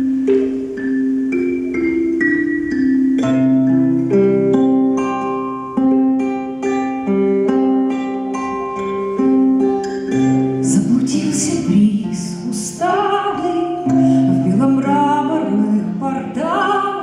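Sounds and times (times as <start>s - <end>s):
acoustic guitar plucking: 0.0s - 17.0s
person singing: 10.4s - 17.0s.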